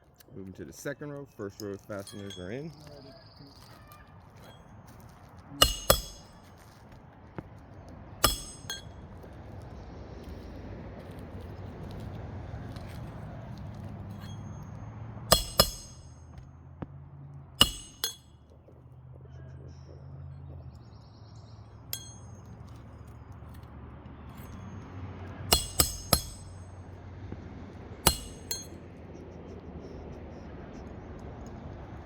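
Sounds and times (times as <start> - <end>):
hatchet driving roofing nails: 5.6 - 6.6, 15.3 - 16.4, 25.5 - 26.7, 28.1 - 28.7.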